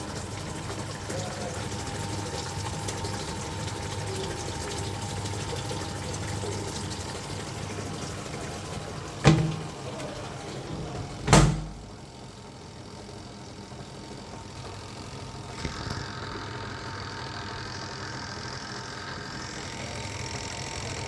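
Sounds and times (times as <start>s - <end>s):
water flowing: 0.0s - 12.3s
washing machine running: 0.0s - 21.0s
sharp knocks: 9.2s - 9.7s.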